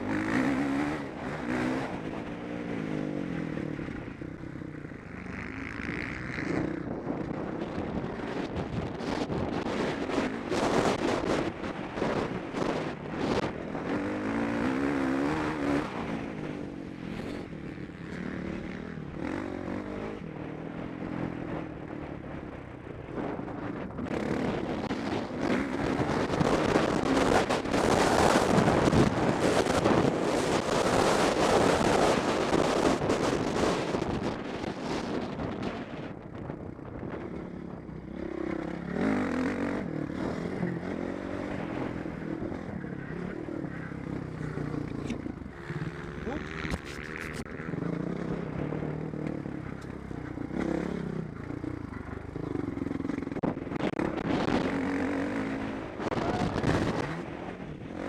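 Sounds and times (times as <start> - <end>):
motocross bike engine revving: 0.0 - 3.6, 12.5 - 20.4, 38.0 - 58.0.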